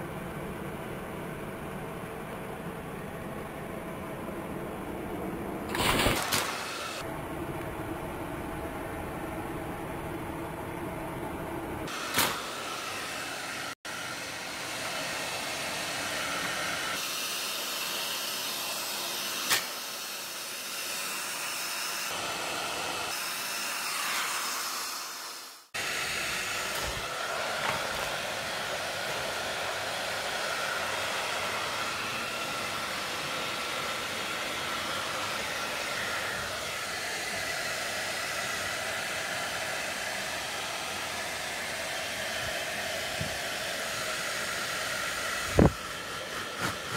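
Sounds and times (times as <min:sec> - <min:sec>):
hair dryer blowing: 0:05.7 - 0:07.1, 0:11.8 - 0:46.9.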